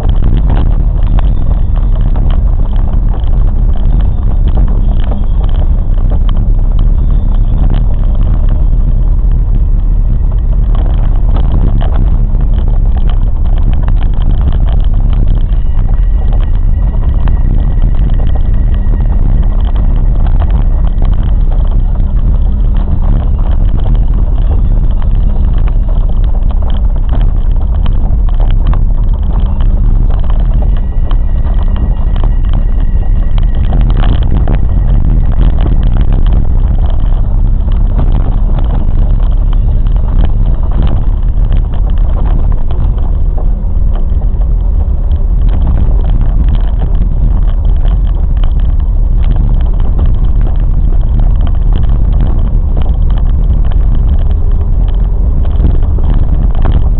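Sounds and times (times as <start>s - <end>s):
faint high whine: 0.0s - 44.9s
train rumbling: 0.0s - 56.9s.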